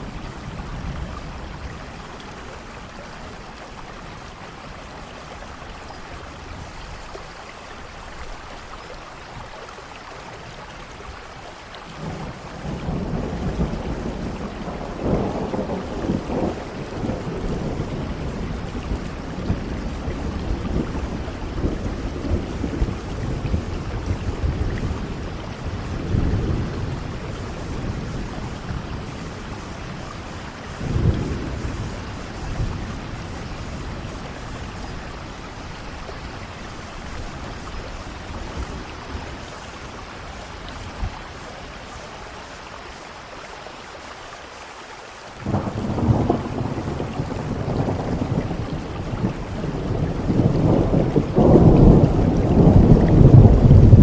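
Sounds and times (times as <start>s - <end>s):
heavy rain: 0.0s - 54.0s
rolling thunder: 12.0s - 41.2s, 45.4s - 54.0s
loud thunder clap: 45.4s - 54.0s.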